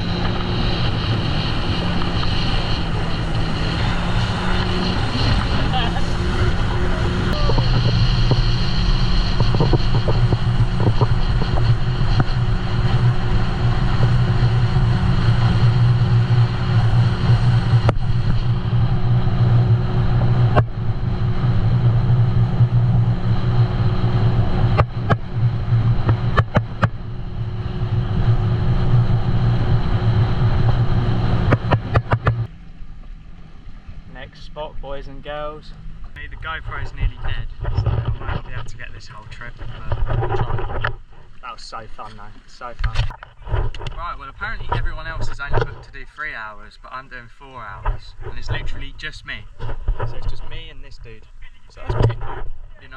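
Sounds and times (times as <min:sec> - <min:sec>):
rushing noise: 0:00.0 - 0:32.5
jet ski engine running: 0:00.0 - 0:52.9.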